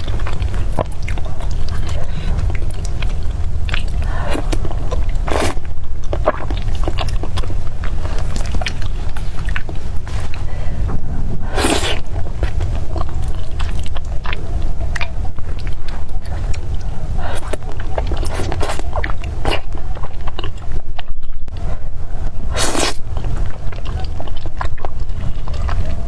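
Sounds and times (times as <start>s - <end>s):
chewing and biting: 0.0s - 26.0s
wet mouth clicks: 11.4s - 14.4s, 22.6s - 25.9s.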